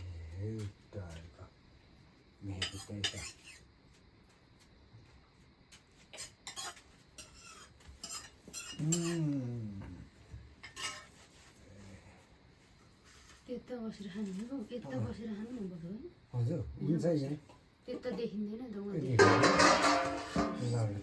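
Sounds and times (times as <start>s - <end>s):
metal dishes and spoons clinking: 6.2s - 9.2s, 10.6s - 11.1s, 19.2s - 21.0s.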